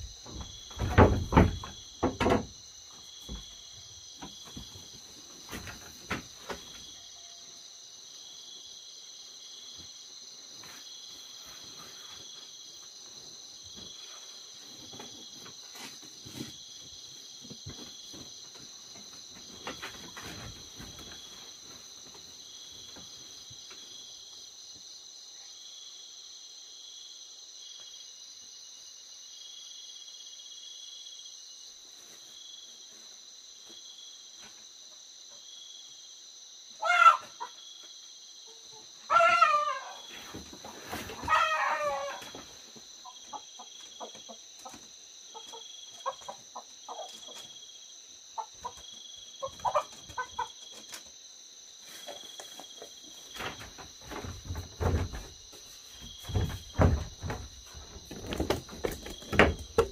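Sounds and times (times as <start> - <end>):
insects droning: 0.0 - 59.9
chicken squawking: 36.8 - 37.4, 39.1 - 40.0, 41.2 - 42.3
chicken clucking: 36.8 - 37.6, 43.0 - 47.6, 48.4 - 51.0.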